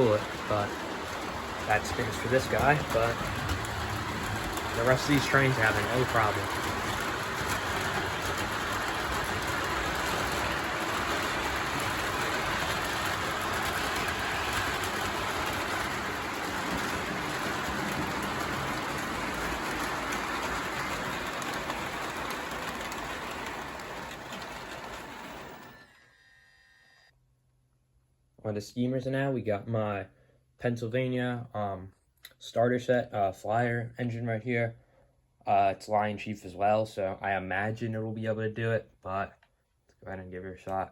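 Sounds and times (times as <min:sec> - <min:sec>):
model trains rattling on track: 0:00.0 - 0:26.2.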